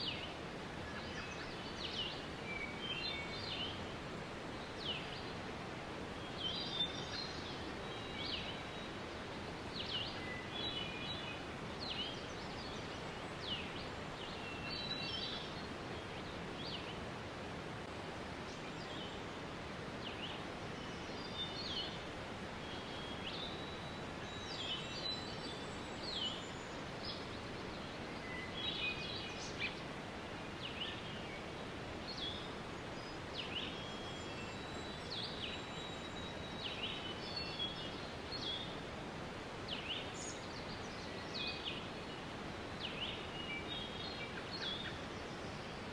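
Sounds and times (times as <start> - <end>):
small birds chirping: 39.6 - 45.9.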